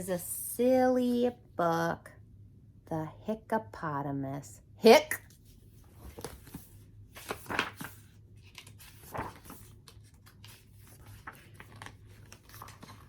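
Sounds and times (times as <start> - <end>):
book pages rustling: 5.2 - 13.0.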